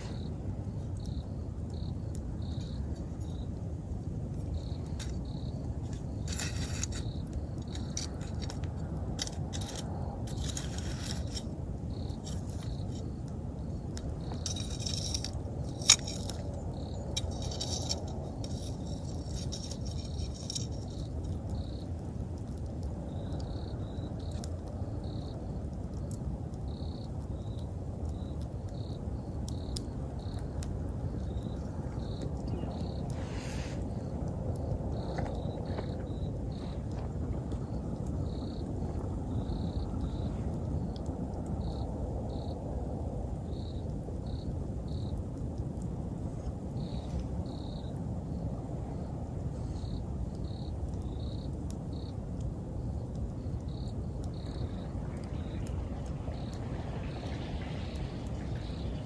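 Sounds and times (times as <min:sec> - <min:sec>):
low steady rumble: 0:00.0 - 0:25.0, 0:51.6 - 0:59.0
insects chirping: 0:00.0 - 0:59.0
wood fire crackling and popping: 0:00.0 - 0:59.0.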